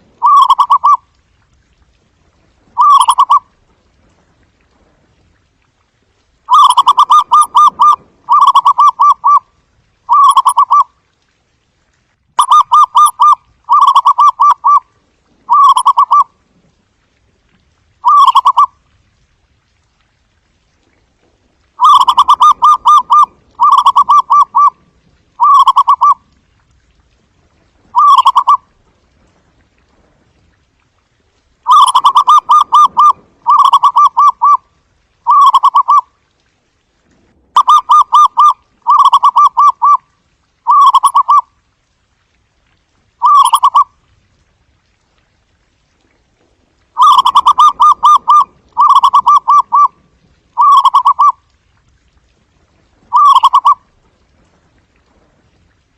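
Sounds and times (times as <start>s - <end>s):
dove cooing: 0.2s - 1.0s, 2.8s - 3.4s, 6.5s - 9.4s, 15.5s - 16.2s, 21.8s - 24.8s, 25.4s - 26.2s, 28.0s - 28.6s, 31.7s - 34.6s, 37.6s - 40.0s, 47.0s - 49.9s, 50.6s - 51.4s, 53.1s - 53.8s.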